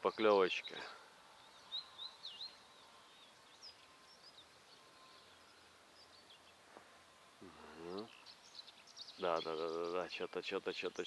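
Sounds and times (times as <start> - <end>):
faint high bird chirps: 0.0 - 6.7, 7.4 - 11.0.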